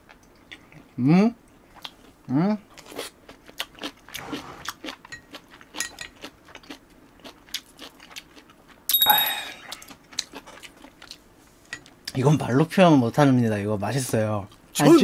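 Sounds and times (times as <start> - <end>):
chewing noodles: 2.7 - 8.8, 9.7 - 11.2
short high ringing tone: 8.9 - 9.6.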